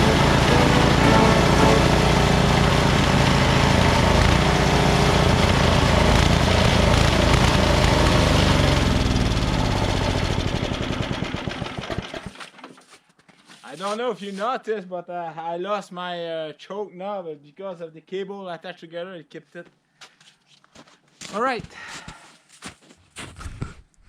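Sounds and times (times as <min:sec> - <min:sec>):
snowblower engine running: 0:00.0 - 0:12.3.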